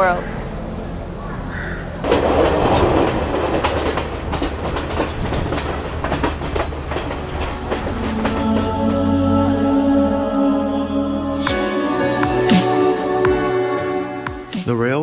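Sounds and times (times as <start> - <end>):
passenger train running on rails: 0.0 - 10.4.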